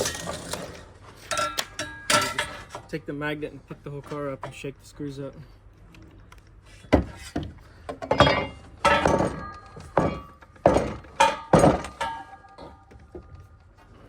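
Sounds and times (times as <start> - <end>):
metal parts clanking: 0.0 - 3.0, 7.9 - 13.5.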